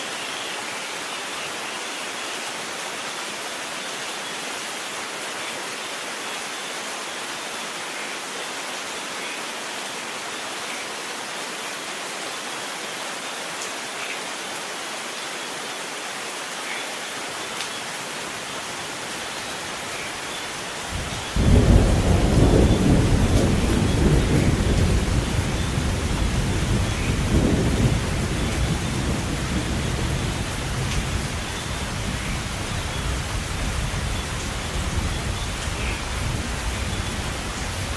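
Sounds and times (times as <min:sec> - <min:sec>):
rain falling: 0:00.0 - 0:37.9
thunder rumbling: 0:20.9 - 0:37.9.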